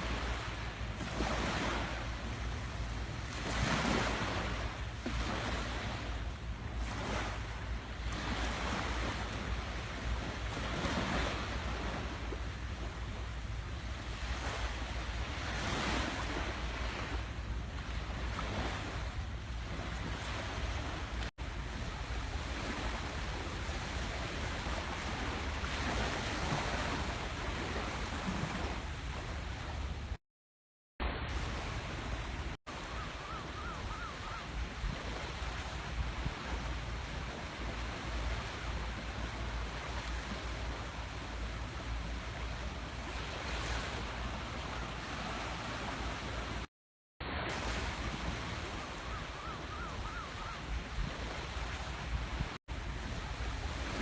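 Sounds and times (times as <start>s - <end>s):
waves washing onto sand: 0.0s - 30.2s, 31.0s - 54.0s
wind rumble on microphone: 31.1s - 46.7s, 47.3s - 54.0s.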